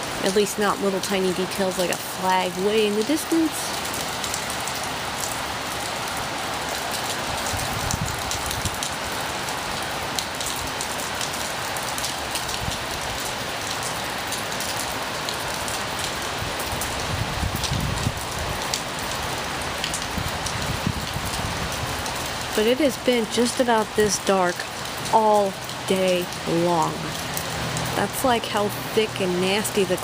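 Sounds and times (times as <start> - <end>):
heavy rain pouring: 0.0 - 30.0
wind gusts on microphone: 7.3 - 8.9, 16.4 - 18.7, 19.9 - 22.1.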